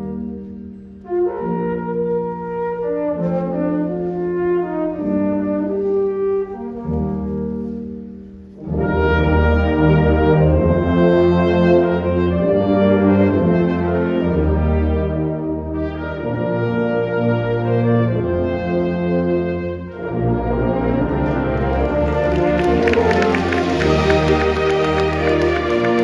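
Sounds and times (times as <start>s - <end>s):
brass band playing held chords: 8.6s - 26.0s.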